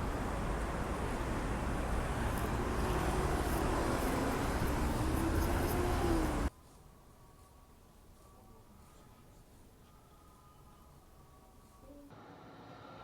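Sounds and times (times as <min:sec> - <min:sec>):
road traffic rumble: 0:00.0 - 0:06.5.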